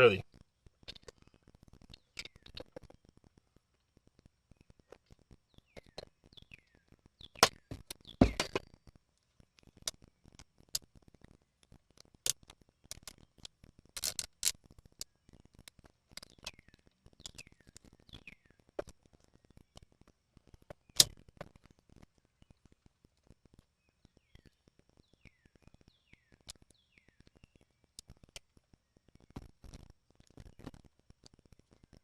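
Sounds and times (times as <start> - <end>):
tools clicking and knocking: 8.2 - 8.6.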